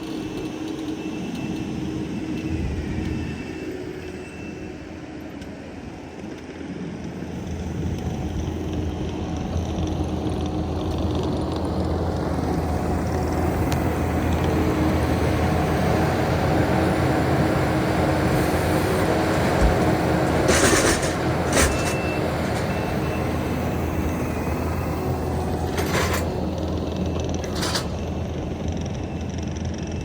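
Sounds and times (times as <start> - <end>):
heavy equipment engine running: 0.0 - 30.0
sharp metal clanks: 20.4 - 22.8.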